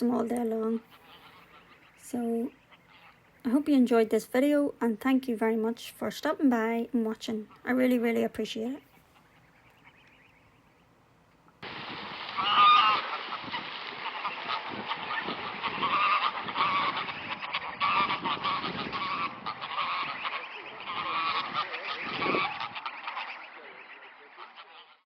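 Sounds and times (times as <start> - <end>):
geese honking: 0.0 - 3.7, 11.6 - 25.0.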